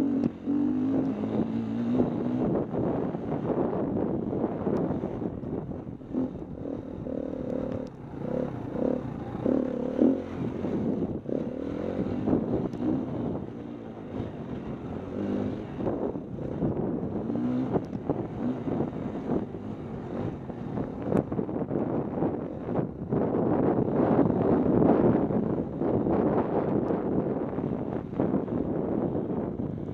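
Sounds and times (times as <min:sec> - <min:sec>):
dirt bike engine revving: 0:00.0 - 0:05.0, 0:06.0 - 0:21.0
wind buffeting microphone: 0:00.0 - 0:29.9.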